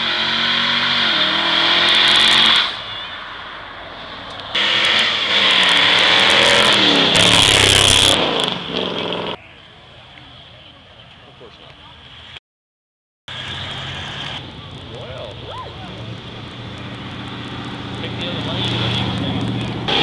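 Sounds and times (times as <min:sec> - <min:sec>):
car engines revving: 0:00.0 - 0:02.8, 0:04.0 - 0:09.4, 0:13.3 - 0:20.0.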